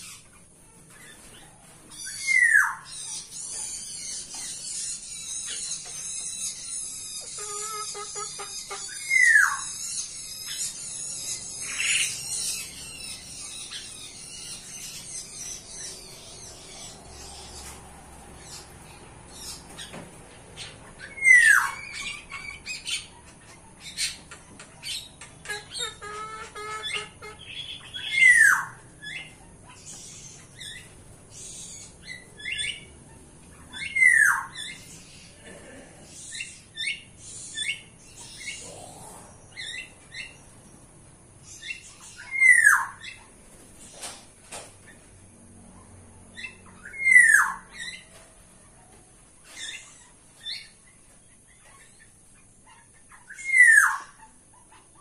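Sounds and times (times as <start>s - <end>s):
rapid high bird chattering: 0.0s - 17.7s, 18.4s - 35.4s
birds chirping and squawking: 0.0s - 55.0s.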